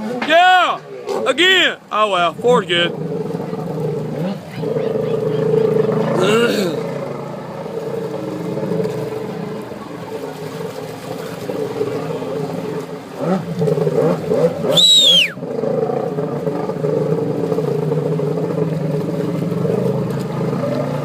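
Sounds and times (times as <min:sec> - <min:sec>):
jet ski engine revving: 0:00.0 - 0:21.0
sharp whistle sliding down: 0:14.7 - 0:15.4.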